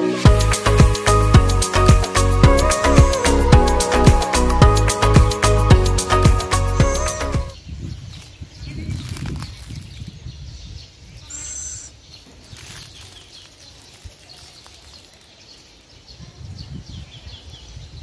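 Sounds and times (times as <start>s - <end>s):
small birds chirping: 7.5s - 18.0s
shrill high-pitched bird call: 11.2s - 12.0s.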